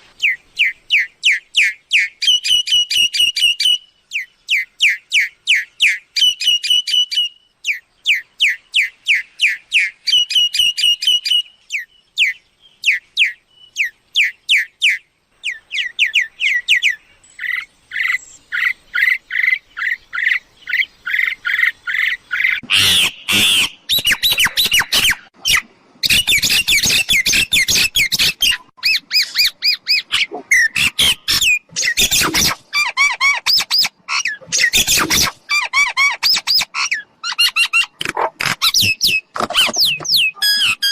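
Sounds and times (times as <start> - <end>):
harsh squawking chatter: 22.6 - 25.6
myna whistling and chattering: 22.6 - 40.9.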